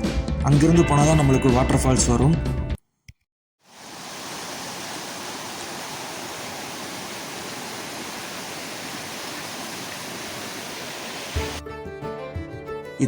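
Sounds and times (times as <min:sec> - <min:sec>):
flowing water rushing: 0:03.7 - 0:11.6.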